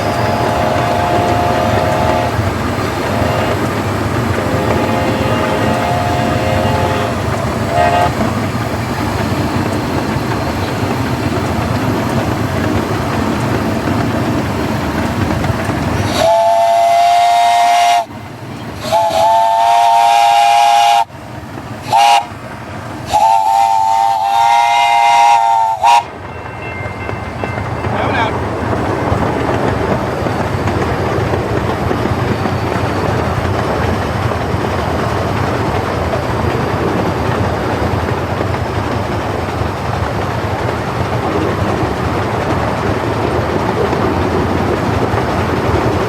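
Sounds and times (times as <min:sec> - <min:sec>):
steam locomotive chime whistle: 0:00.0 - 0:03.8, 0:04.4 - 0:08.2, 0:16.0 - 0:21.2, 0:21.8 - 0:22.3, 0:23.1 - 0:28.4
steam train running: 0:00.0 - 0:46.0.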